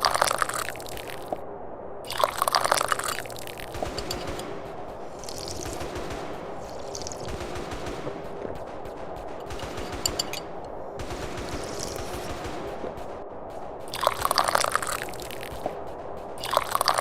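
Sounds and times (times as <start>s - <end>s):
tea slurped from a cup: 0.0s - 1.3s, 2.1s - 3.7s, 5.2s - 5.8s, 6.8s - 7.3s, 13.9s - 15.4s.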